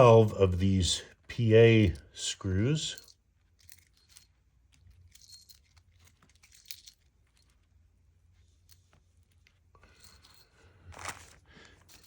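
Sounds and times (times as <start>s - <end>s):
small screws and washers clicking: 2.9s - 7.7s
faint rustling: 3.0s - 12.0s.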